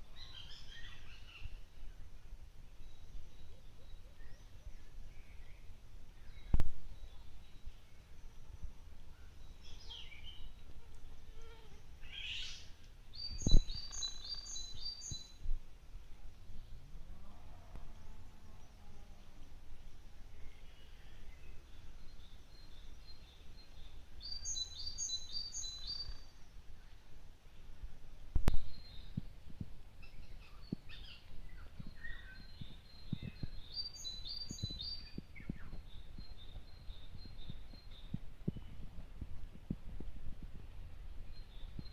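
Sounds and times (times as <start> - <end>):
songbirds chirping: 0.0 - 41.9
soft low thumps: 34.6 - 41.9.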